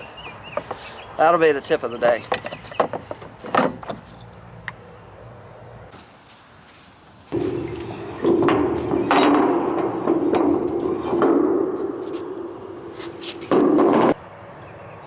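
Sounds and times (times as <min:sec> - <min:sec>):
metal clanking and knocks: 0:07.4 - 0:12.8, 0:13.4 - 0:14.2.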